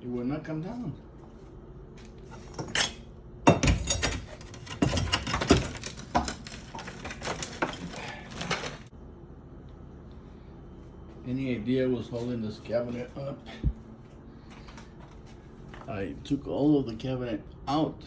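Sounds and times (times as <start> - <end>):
countertop knocking and rattling: 3.5 - 7.8.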